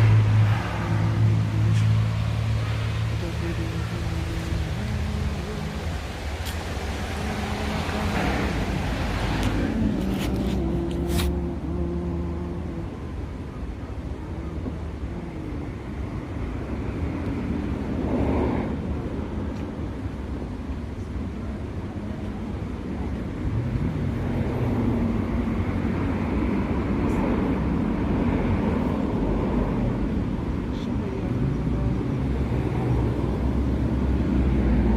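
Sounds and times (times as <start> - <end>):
road noise: 0.0 - 34.9
vehicle engine hum: 0.0 - 34.9.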